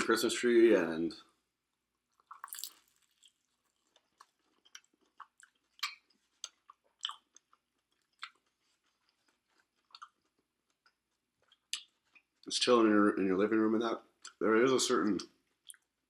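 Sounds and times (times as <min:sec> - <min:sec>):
person chewing food: 0:01.9 - 0:12.5, 0:15.4 - 0:16.0.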